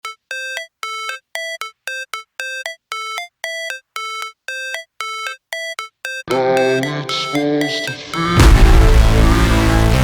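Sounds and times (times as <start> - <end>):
staccato synthesizer melody: 0.0 - 10.0.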